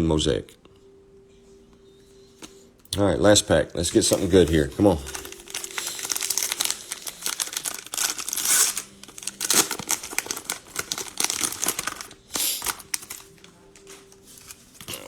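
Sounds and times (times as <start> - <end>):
cellophane wrapper tearing and crinkling: 3.8 - 15.0.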